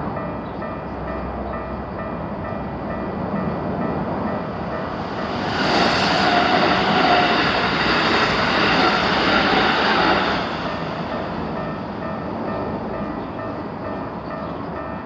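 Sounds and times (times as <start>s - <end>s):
electric train passing: 0.0s - 15.0s
level crossing warning bell: 10.2s - 15.0s.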